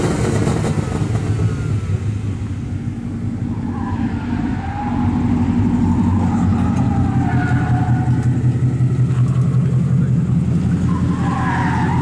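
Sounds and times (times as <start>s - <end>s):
car engine running at low revs: 5.1s - 11.2s.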